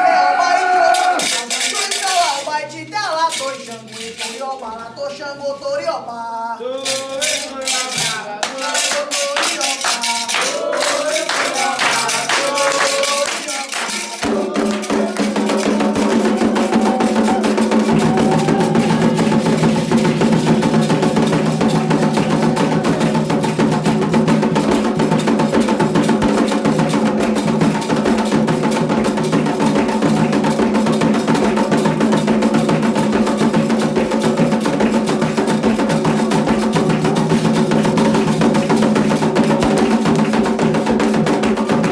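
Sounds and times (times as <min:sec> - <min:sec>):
group chanting: 0:00.0 - 0:01.4, 0:06.6 - 0:24.8
singing over hand percussion: 0:00.0 - 0:41.9
dense drumming and percussion: 0:06.9 - 0:41.9.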